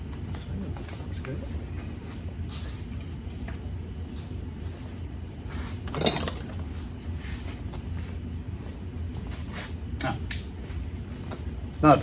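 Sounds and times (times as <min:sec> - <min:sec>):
steady low hum: 0:00.0 - 0:12.0
metal hand tools clinking: 0:05.9 - 0:06.6.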